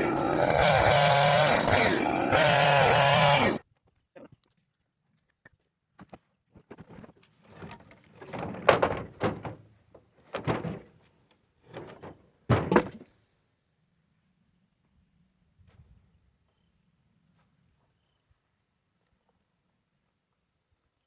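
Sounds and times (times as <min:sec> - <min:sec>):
wooden thunks and knocks: 0:08.2 - 0:11.0, 0:11.7 - 0:13.0.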